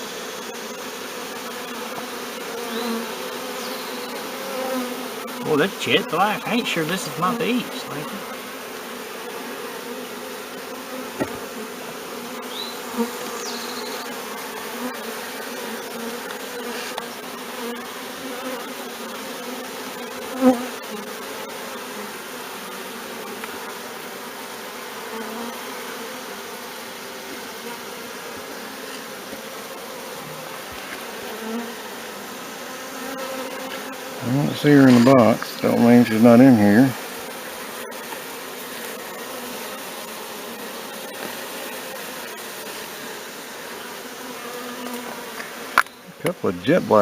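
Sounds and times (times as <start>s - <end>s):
swarm of bees buzzing: 0.0s - 47.0s
sharp knock: 11.2s - 11.4s.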